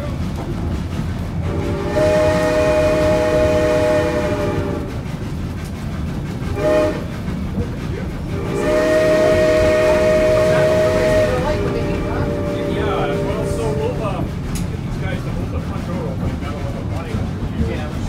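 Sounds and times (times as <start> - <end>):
low rumble of moving train: 0.0 - 18.0
locomotive steam whistle blasts: 1.4 - 4.9, 6.5 - 7.1, 8.4 - 14.0.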